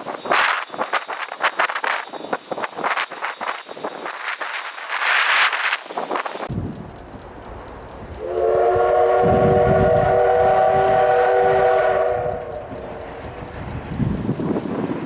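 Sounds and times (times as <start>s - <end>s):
steam whistle blast: 8.2s - 12.9s.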